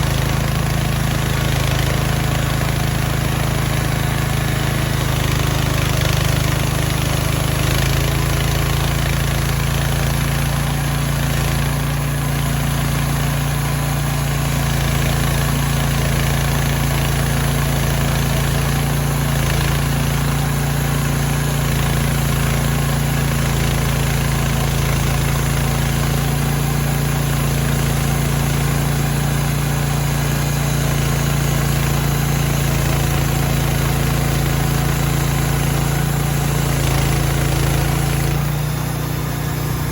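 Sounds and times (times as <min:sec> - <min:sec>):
sawmill gasoline engine running: 0:00.0 - 0:39.9.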